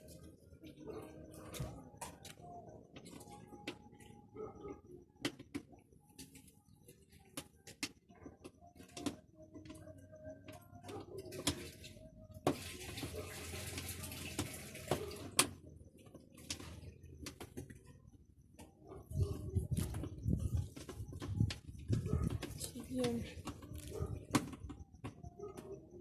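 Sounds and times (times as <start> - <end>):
water running: 12.5 - 15.2.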